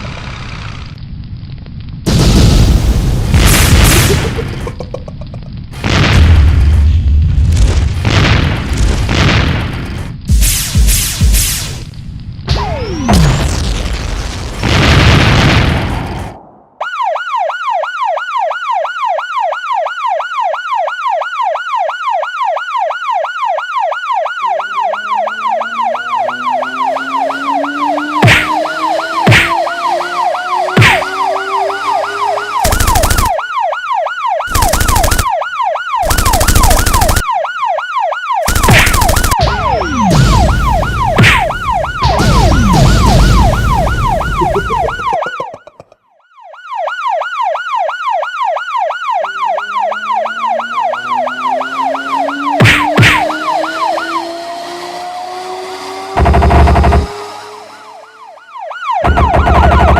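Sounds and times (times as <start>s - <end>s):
loud crashing bursts: 2.1s - 4.7s, 38.5s - 45.1s
siren wailing: 16.7s - 59.9s.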